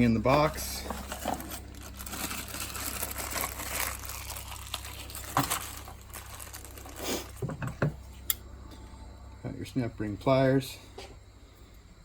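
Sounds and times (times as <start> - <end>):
packaging rustling and crinkling: 0.3 - 7.8.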